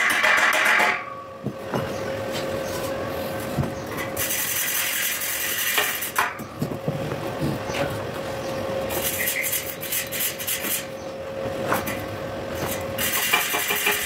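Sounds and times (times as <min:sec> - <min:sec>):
hand tool scraping weld slag: 0:04.0 - 0:06.4, 0:08.9 - 0:10.9, 0:12.6 - 0:14.0.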